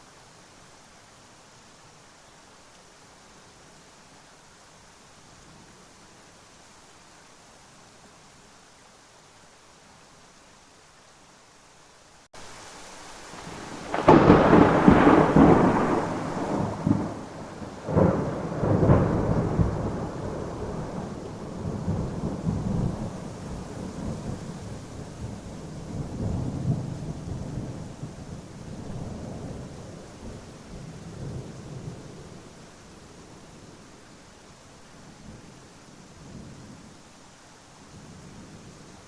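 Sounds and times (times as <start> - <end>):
rain hissing: 0.0 - 39.0
thunder clap and rumble: 13.4 - 23.2.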